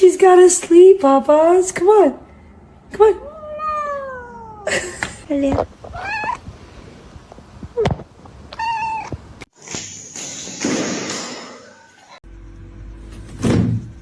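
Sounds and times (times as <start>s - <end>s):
cat meowing: 3.2s - 4.7s, 5.8s - 6.6s, 7.8s - 9.4s.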